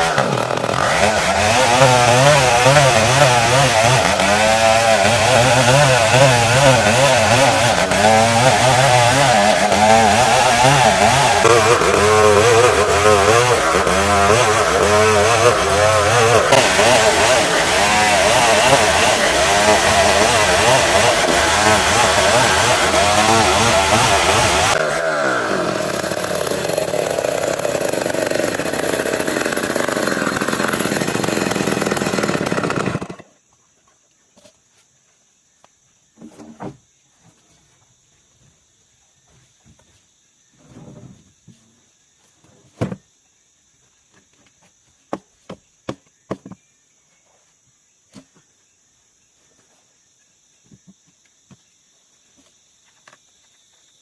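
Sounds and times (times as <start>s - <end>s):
chainsaw sawing wood: 0.0s - 33.3s.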